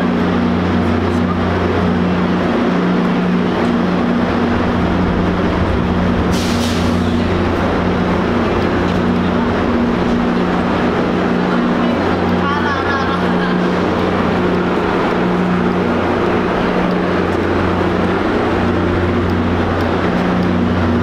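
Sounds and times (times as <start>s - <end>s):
diesel engines humming: 0.0s - 21.0s
air release hiss: 6.3s - 7.2s.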